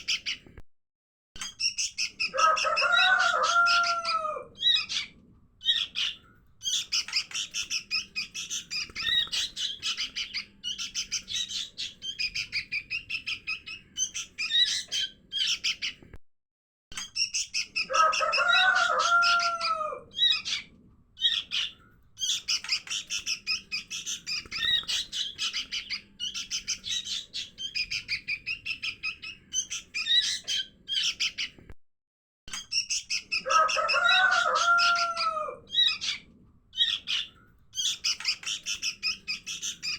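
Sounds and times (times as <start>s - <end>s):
fledglings begging chirps: 1.4s - 16.0s, 17.1s - 31.6s, 36.8s - 39.9s.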